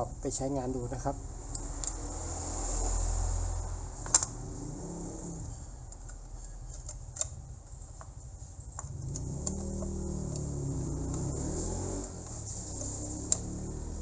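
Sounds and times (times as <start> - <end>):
clicks and knocks of handling: 5.9 - 10.5.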